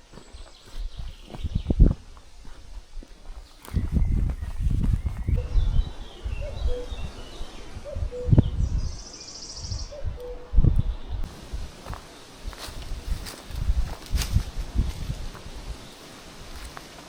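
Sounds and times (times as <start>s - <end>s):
birds singing: 0.0s - 2.0s, 3.4s - 11.3s, 15.6s - 16.7s
footsteps crunching on trail: 0.0s - 7.9s, 11.2s - 17.0s
low bird call: 3.7s - 11.3s
high bird trill: 3.8s - 11.3s.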